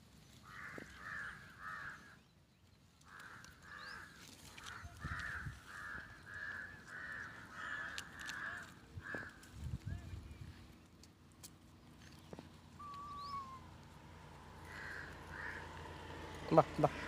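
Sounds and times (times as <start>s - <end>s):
bird giving harsh cawing calls: 0.4s - 2.3s, 3.0s - 9.6s, 12.8s - 13.8s, 14.4s - 17.0s.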